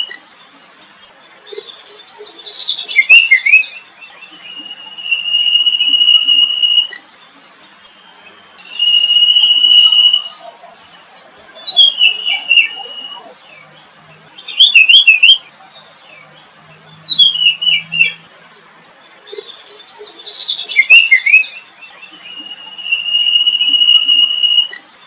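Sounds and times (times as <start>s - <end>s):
songbird singing: 0.0s - 25.0s.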